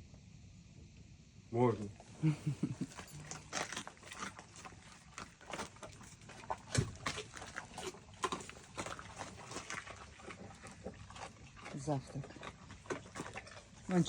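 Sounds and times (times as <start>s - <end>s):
dogs crunching bones: 2.8s - 14.0s.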